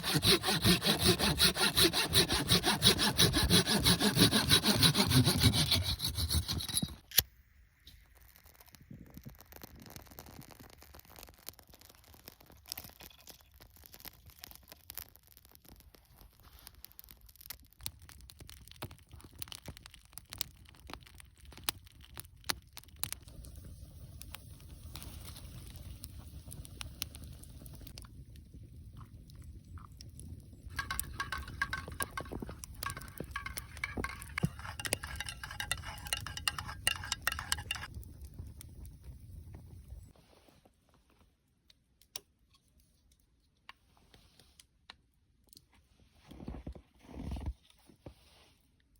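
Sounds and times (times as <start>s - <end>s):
wood fire crackling and popping: 8.1s - 40.1s.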